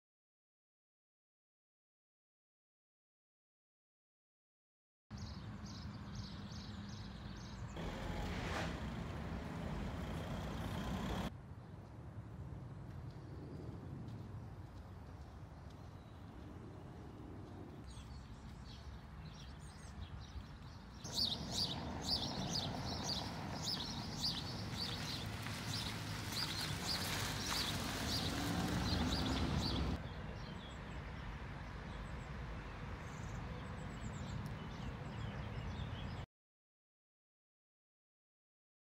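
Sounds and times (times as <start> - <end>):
birds chirping and singing: 17.8 - 30.7.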